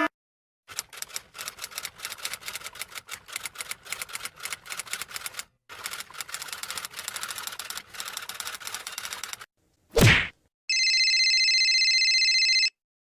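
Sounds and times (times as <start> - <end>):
keyboard typing clatter: 0.7 - 9.5.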